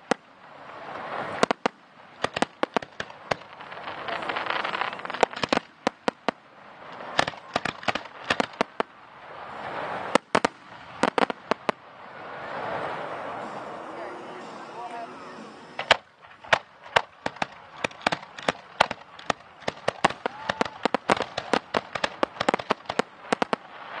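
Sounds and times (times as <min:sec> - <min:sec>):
fireworks sharp bangs: 0:00.0 - 0:13.8, 0:15.7 - 0:24.0
crackling hiss of fireworks: 0:00.0 - 0:24.0.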